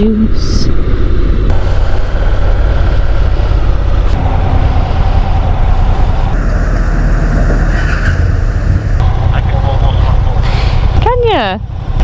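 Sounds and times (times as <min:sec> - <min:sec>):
motorcycle engine rumble: 0:00.0 - 0:12.0
wind: 0:00.0 - 0:12.0.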